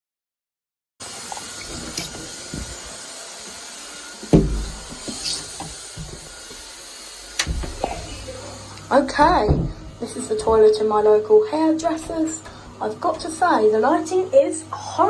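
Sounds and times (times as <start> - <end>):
extractor fan hissing: 1.0 - 10.4
knocks: 4.3 - 6.6, 9.1 - 10.8.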